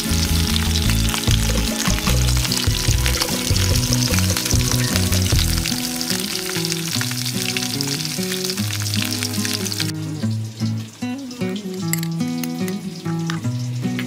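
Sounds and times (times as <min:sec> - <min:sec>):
background music: 0:00.0 - 0:09.9
fish sizzling in oil: 0:00.0 - 0:14.0.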